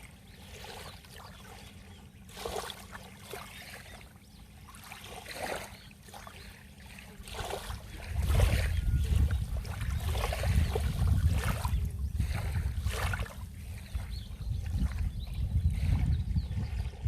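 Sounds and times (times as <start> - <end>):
sea waves splashing: 0.0 - 14.2
steady low rumble: 7.7 - 17.0.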